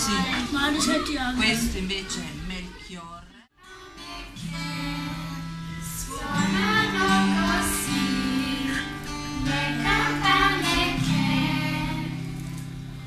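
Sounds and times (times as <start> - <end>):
song with singing voices: 3.6 - 12.4.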